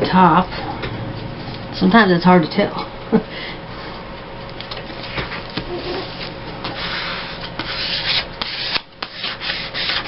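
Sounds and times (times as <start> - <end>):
paper rubbing on tabletop: 5.7 - 10.0.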